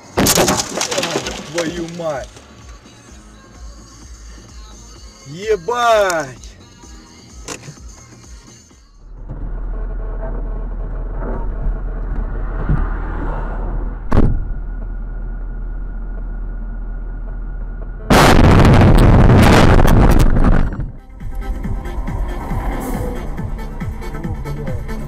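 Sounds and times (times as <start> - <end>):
car engine and road noise: 0.0 - 25.0
sharp bang: 18.1 - 21.0
loud rush of noise: 18.1 - 24.6.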